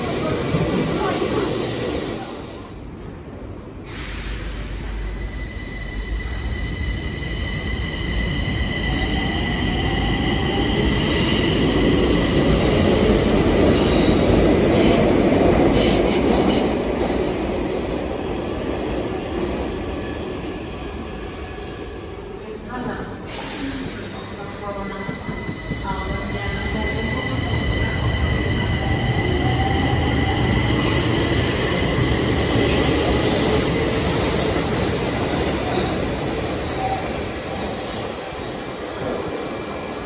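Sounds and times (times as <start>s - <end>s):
metro train running past: 0.0s - 40.0s
high whine of wheels on rails: 23.8s - 40.0s.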